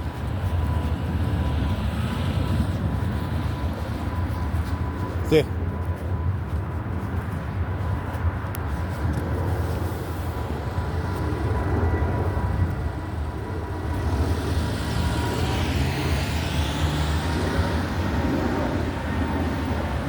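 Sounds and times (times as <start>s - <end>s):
road traffic rumble: 0.0s - 20.0s
car passing on wet road: 14.2s - 18.1s.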